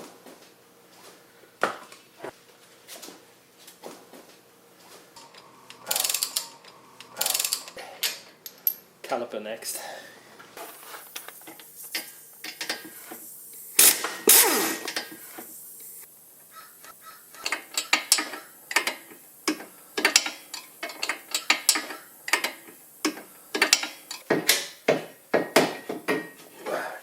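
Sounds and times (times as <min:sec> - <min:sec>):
ratchet wrench clicking: 0:05.2 - 0:08.8, 0:17.4 - 0:24.3.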